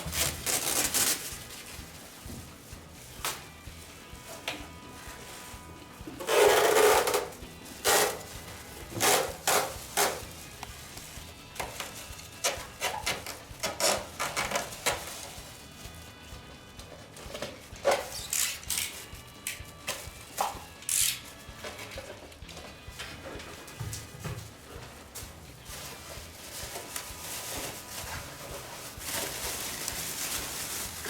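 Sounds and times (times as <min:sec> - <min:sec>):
rattling scrape: 0:06.2 - 0:08.3
plastic parts clicking and clattering: 0:17.3 - 0:22.3.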